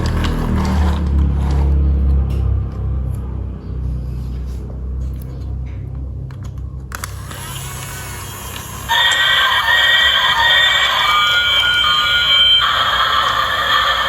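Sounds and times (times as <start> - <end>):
toy train motor rumbling: 0.0 - 1.8, 6.9 - 14.0
electronic toy sound effect: 7.2 - 14.0.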